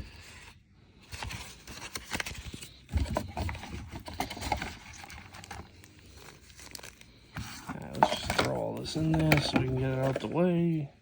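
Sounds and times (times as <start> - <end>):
packaging taps and rustling: 1.9 - 10.3.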